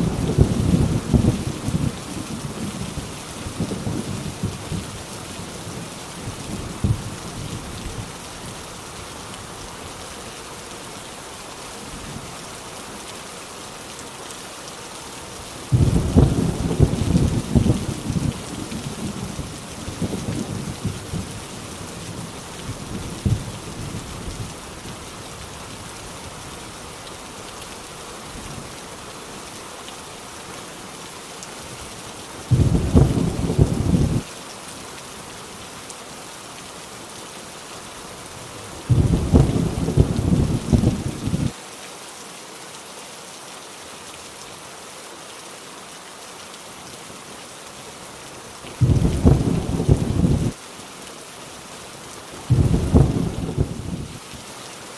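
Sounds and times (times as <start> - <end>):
low rumbling thunder: 0.0 - 2.9, 15.7 - 19.3, 32.5 - 34.2, 38.9 - 41.5, 48.8 - 50.6, 52.5 - 54.2
heavy rain on a tin roof: 0.0 - 54.9
loud bursts of thunder: 15.7 - 18.4, 32.5 - 34.2, 38.9 - 41.5, 48.8 - 50.6, 52.5 - 54.1.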